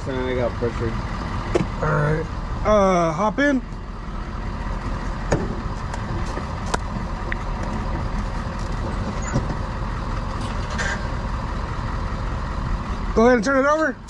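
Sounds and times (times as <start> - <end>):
vehicle engine idling: 0.0 - 14.0
sharp knocks and clicks: 1.5 - 1.8.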